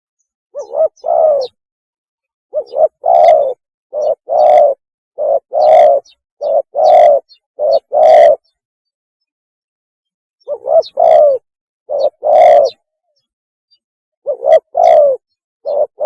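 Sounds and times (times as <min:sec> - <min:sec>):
dove cooing: 0:00.6 - 0:01.6, 0:02.5 - 0:08.6, 0:10.4 - 0:12.9, 0:14.2 - 0:16.0.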